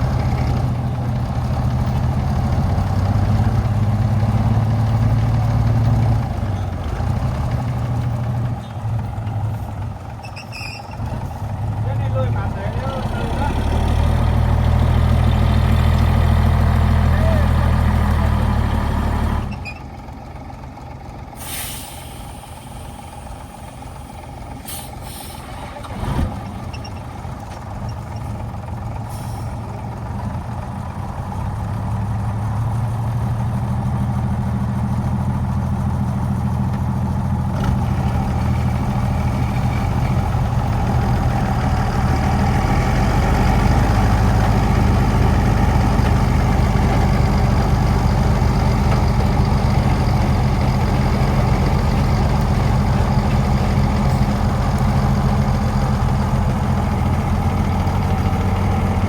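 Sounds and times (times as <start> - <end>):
truck engine running: 0.0 - 59.0
short hisses: 21.4 - 23.2, 24.6 - 25.6.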